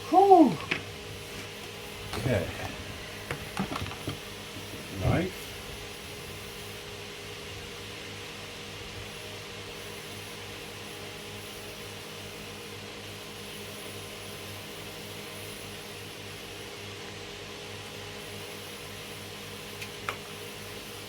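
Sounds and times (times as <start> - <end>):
machine humming: 0.0 - 6.2.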